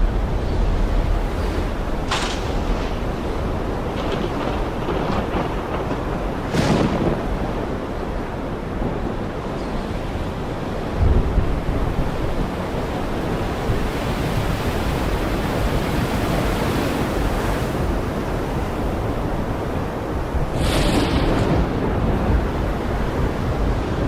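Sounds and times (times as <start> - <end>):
heavy rain falling: 0.0 - 9.6, 17.2 - 24.0.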